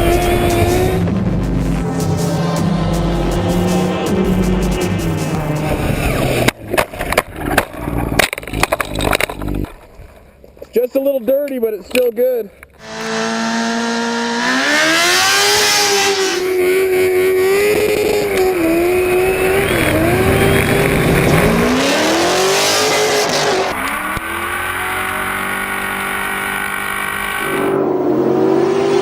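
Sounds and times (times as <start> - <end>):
race engine revving: 0.0 - 6.6, 12.8 - 29.0.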